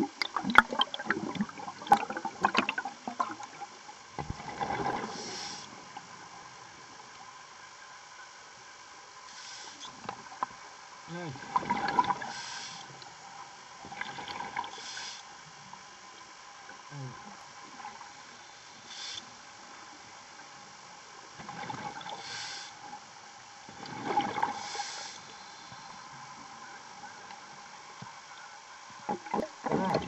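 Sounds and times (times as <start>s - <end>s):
steady background hiss: 0.0s - 30.0s
diver breathing through regulator: 5.0s - 5.7s, 12.2s - 12.9s, 22.1s - 22.8s, 24.5s - 25.9s.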